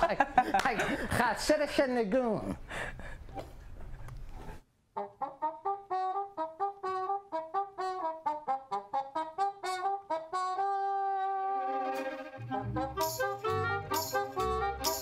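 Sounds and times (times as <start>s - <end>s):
solo trumpet: 5.0s - 15.0s.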